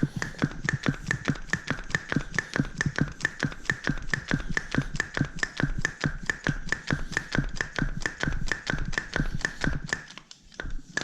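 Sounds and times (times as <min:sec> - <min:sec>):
air pump clicking strokes: 0:00.0 - 0:11.0.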